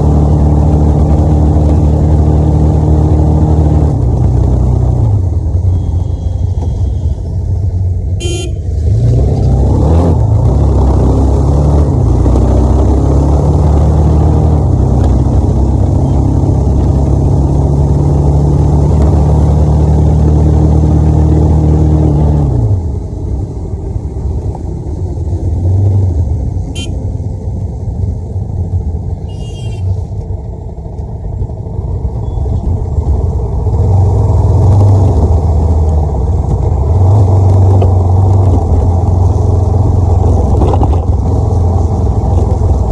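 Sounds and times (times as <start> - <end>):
motorcycle engine running: 0.0 - 8.8, 10.6 - 21.9, 22.8 - 42.9
short horn toots: 5.7 - 7.3, 8.2 - 8.8, 26.7 - 27.0, 29.2 - 30.1
wind rushing on microphone: 36.4 - 42.9.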